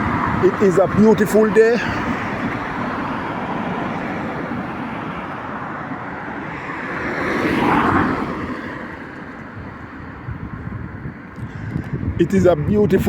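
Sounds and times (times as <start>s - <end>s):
vehicle passing close: 0.0s - 11.1s
road traffic going by: 0.0s - 13.0s.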